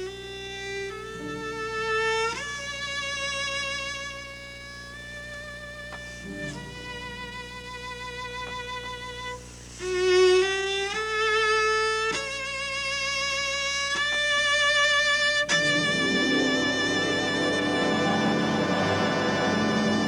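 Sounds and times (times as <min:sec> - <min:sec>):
cello playing sustained notes: 0:00.0 - 0:20.0
lower notes layer: 0:15.5 - 0:20.0.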